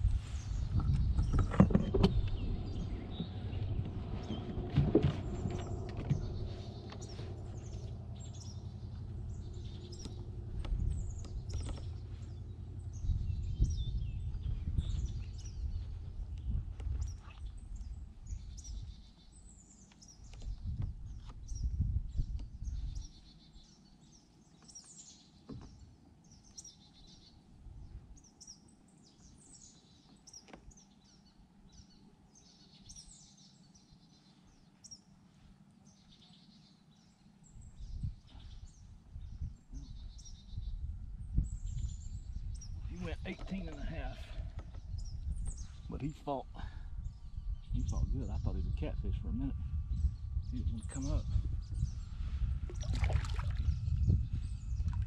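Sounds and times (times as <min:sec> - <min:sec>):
low rumbling noise: 0:00.0 - 0:23.4, 0:37.4 - 0:55.0
birds chirping and calling: 0:00.2 - 0:35.0, 0:35.9 - 0:55.0.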